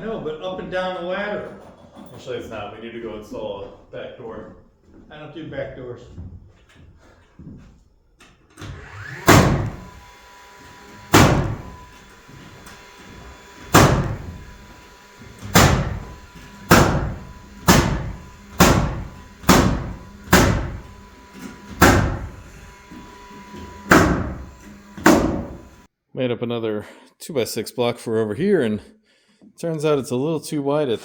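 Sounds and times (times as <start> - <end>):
hammer striking wood: 9.2 - 10.0, 10.8 - 25.8.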